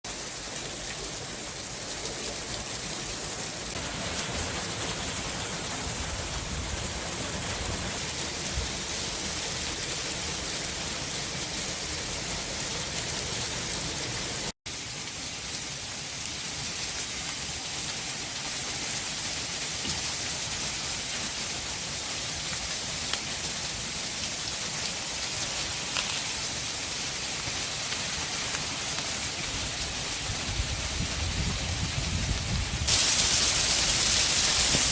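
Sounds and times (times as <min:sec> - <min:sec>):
hail and rain pelting down: 0:00.1 - 0:34.9
hailstones striking: 0:00.1 - 0:34.9.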